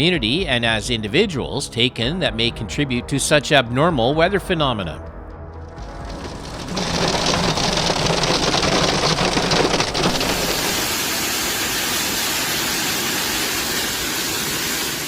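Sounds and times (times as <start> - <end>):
low hum: 5.6 - 11.2
hail and rain pelting: 5.8 - 15.0
heavy rain hissing: 5.8 - 15.0.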